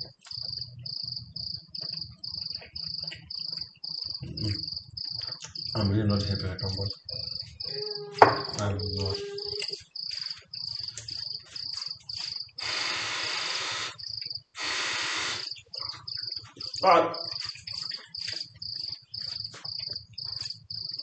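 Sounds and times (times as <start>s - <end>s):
cricket chirping: 0.0s - 21.0s
rushes of hiss: 14.6s - 15.5s.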